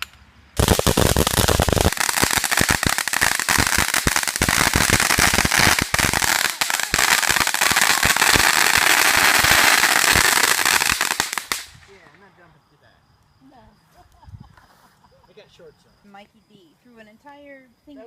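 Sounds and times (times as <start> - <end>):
firecrackers crackling: 0.0 - 12.2.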